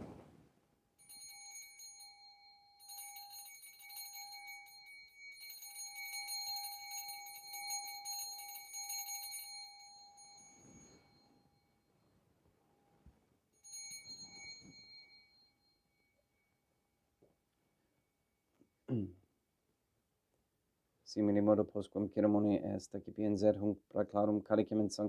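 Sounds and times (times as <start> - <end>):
altar bells ringing: 1.0 - 11.8, 13.6 - 16.5.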